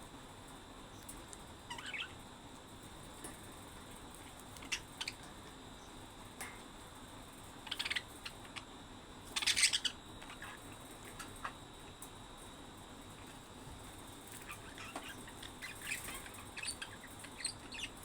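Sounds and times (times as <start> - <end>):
budgerigars chirping: 1.7 - 2.1, 7.7 - 8.4, 9.4 - 10.6, 14.4 - 18.0.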